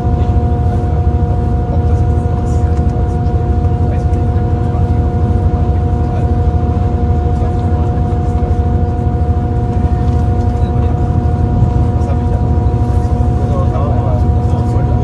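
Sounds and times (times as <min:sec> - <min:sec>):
steady hum: 0:00.0 - 0:15.0
train rumble inside carriage: 0:00.0 - 0:15.0.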